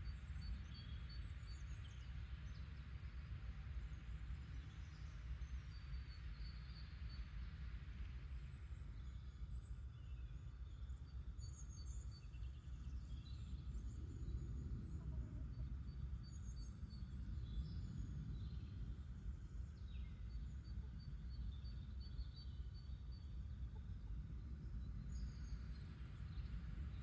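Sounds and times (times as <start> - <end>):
steady low rumble: 12.8 - 27.0.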